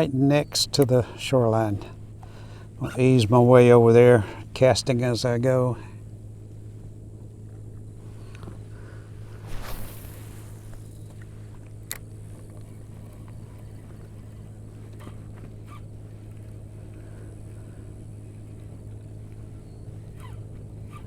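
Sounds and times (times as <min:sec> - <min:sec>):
trolling motor humming: 0:00.0 - 0:21.0
short rushing swish: 0:09.2 - 0:11.1.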